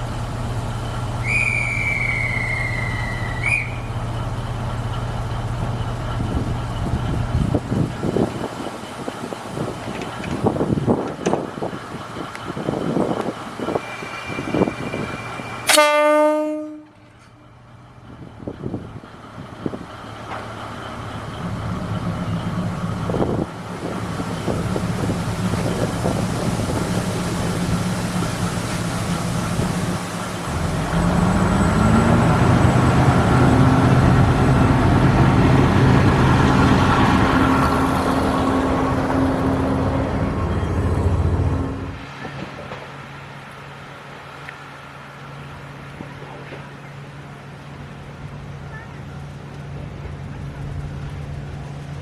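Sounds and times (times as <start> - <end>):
train horn blast: 15.6 - 17.4
diesel engine revving: 19.4 - 42.0.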